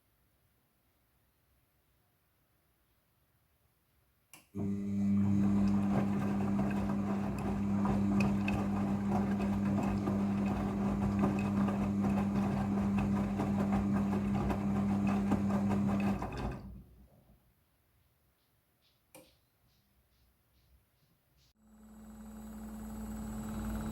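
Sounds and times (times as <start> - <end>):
washing machine running: 4.6 - 17.0, 21.9 - 23.9.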